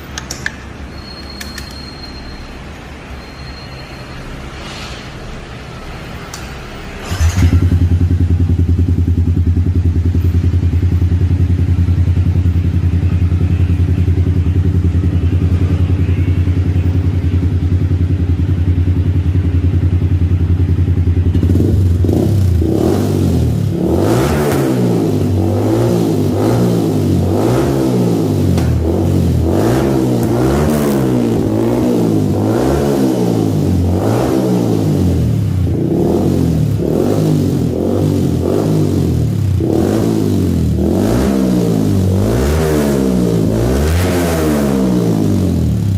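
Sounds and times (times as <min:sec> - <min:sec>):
loud exhaust engine revving: 0:21.2 - 0:45.9.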